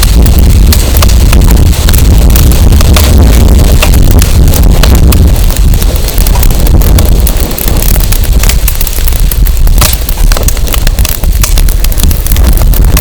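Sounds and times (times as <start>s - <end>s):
firewood crackling: 0.0s - 13.0s
wind rumbling on microphone: 0.0s - 13.0s.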